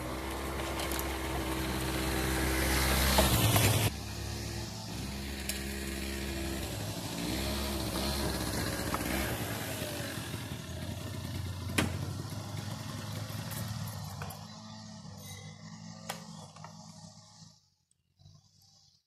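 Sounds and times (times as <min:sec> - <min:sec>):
motor scooter engine running: 0:00.0 - 0:19.0.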